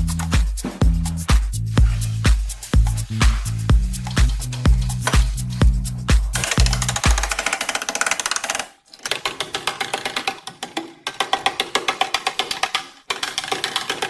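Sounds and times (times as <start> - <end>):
electronic music beat: 0.0 - 7.6
rapid even clicking: 0.0 - 14.0.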